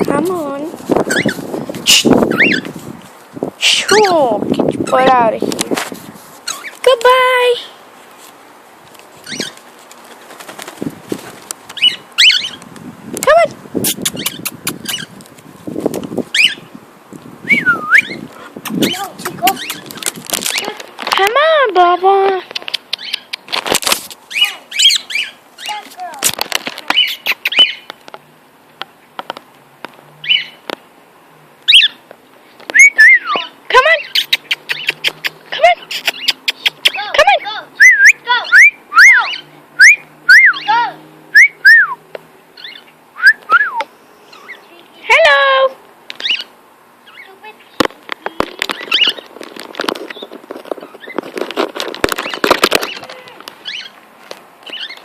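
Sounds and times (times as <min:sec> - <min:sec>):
cockatiel chirping: 0:01.1 - 0:02.7, 0:06.4 - 0:06.7, 0:09.2 - 0:09.6, 0:11.8 - 0:12.6, 0:14.1 - 0:15.1, 0:16.3 - 0:16.7, 0:17.5 - 0:20.0, 0:24.3 - 0:25.8, 0:26.9 - 0:27.9, 0:32.8 - 0:37.0
cockatiel chirps: 0:01.1 - 0:02.7, 0:06.4 - 0:06.7, 0:09.2 - 0:09.6, 0:11.8 - 0:12.6, 0:13.9 - 0:15.1, 0:24.3 - 0:25.8, 0:26.9 - 0:27.9
cockatiel scratchy clicking: 0:13.8 - 0:16.1, 0:18.6 - 0:21.2, 0:22.3 - 0:24.2, 0:34.1 - 0:37.0
sharp clicks and taps: 0:22.2 - 0:24.0.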